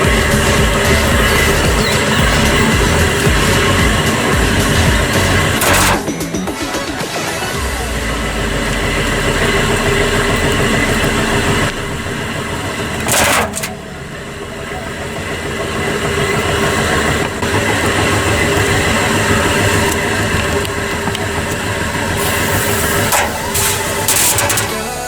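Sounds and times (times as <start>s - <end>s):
washing machine running: 0.0s - 25.0s
loud hissing burst: 21.0s - 25.0s.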